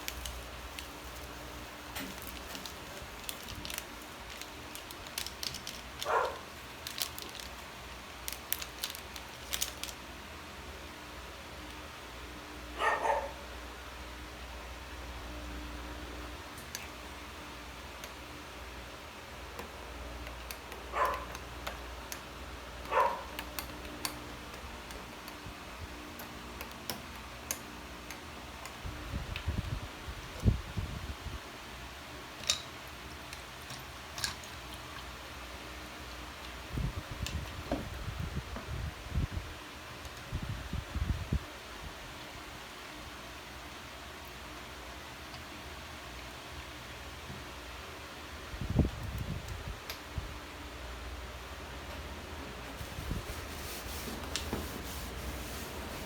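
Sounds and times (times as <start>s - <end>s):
dog barking: 6.0s - 6.4s, 12.8s - 13.4s, 20.9s - 21.3s, 22.9s - 23.3s.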